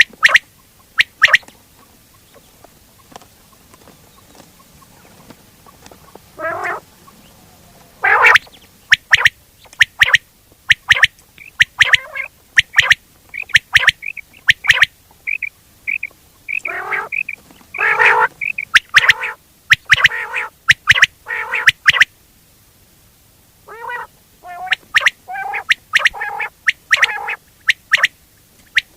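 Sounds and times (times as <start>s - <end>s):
quail calling: 0.0s - 22.1s, 23.6s - 28.9s.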